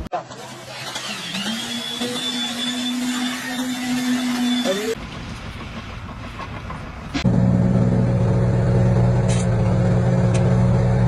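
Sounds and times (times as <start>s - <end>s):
low motor hum: 4.2s - 11.0s.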